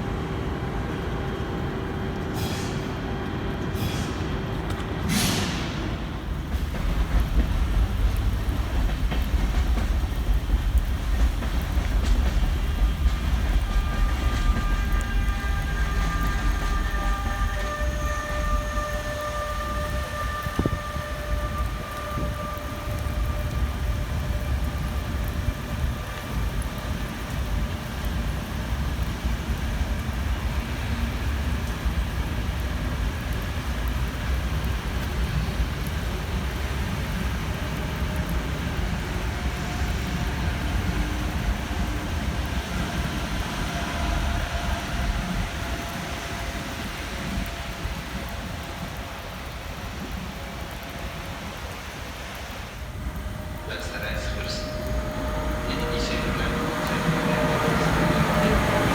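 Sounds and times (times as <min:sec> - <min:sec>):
train rumbling: 0:00.0 - 0:58.9
whining tones: 0:12.8 - 0:26.6, 0:52.4 - 0:58.9.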